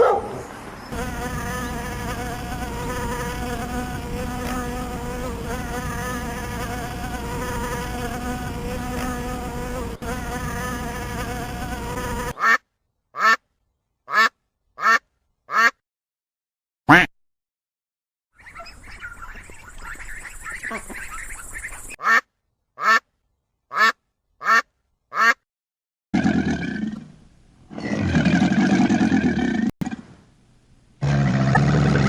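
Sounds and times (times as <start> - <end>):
flying insect buzzing: 0.9 - 12.4.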